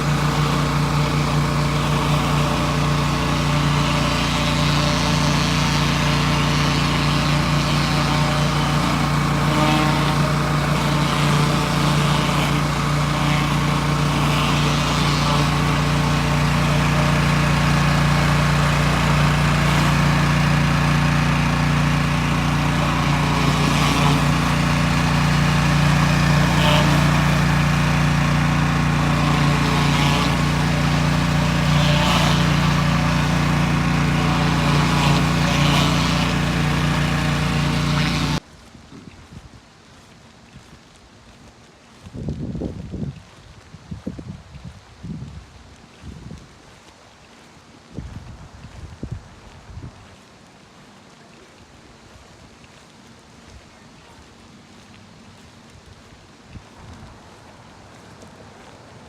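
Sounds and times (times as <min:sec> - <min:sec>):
high-pressure water spraying: 0:00.0 - 0:38.4
pressure washer engine running: 0:00.0 - 0:38.5, 0:48.8 - 0:59.0.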